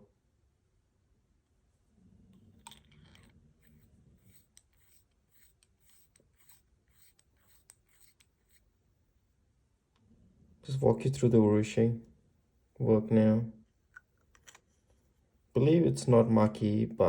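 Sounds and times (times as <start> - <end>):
soft rubbing of pen: 2.3 - 8.8.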